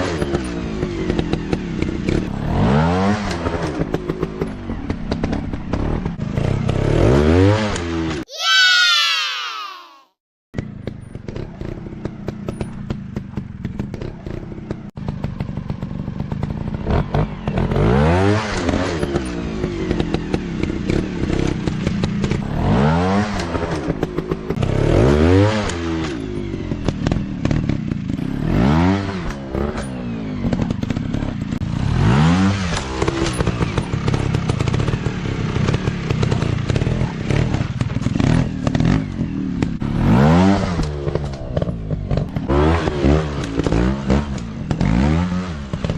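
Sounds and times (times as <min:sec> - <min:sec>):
dirt bike engines revving: 0:16.4 - 0:45.9.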